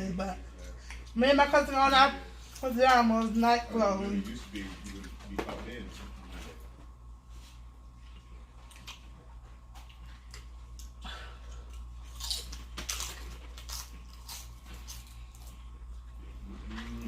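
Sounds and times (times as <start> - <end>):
chewing sausages: 7.8 - 17.0.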